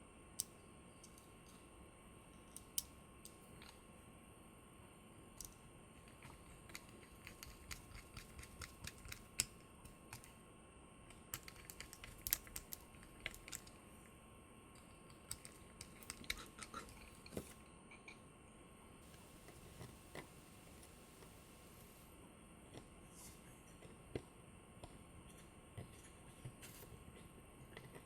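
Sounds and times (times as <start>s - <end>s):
small parts and tools clicking: 0.4s - 1.6s, 2.4s - 3.8s, 11.1s - 13.8s.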